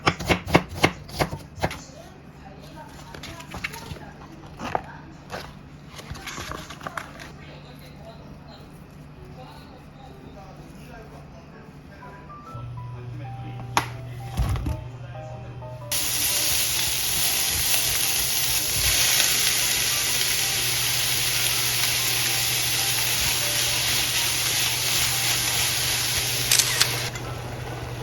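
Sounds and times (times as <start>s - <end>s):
food sizzling in a pan: 15.9s - 28.0s.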